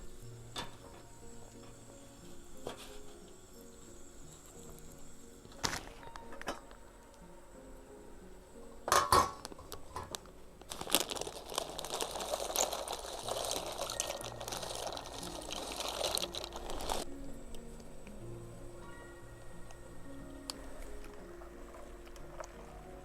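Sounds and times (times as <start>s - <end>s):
liquid pouring: 10.7s - 17.1s.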